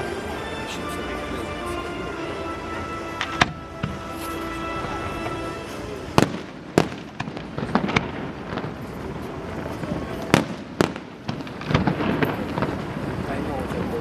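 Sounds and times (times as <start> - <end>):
fireworks bangs: 2.7 - 14.0
fireworks crackles and pops: 3.0 - 14.0.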